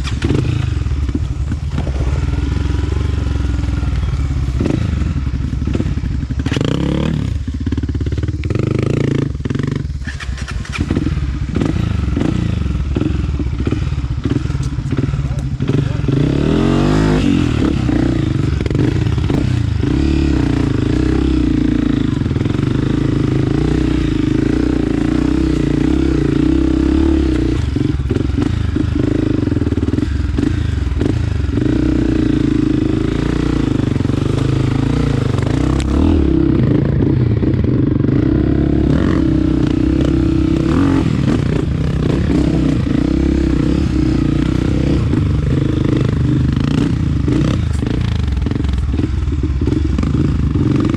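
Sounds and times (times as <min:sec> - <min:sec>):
clatter: 0:00.0 - 0:02.7
trail bike engine running: 0:00.0 - 0:50.9.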